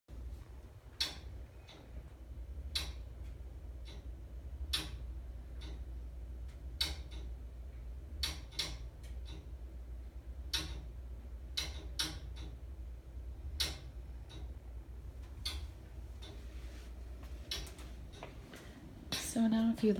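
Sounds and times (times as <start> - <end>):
low steady hum: 0.1 - 19.9
gas piping clicks: 0.9 - 4.1, 13.5 - 14.6, 15.2 - 16.4, 17.5 - 19.9.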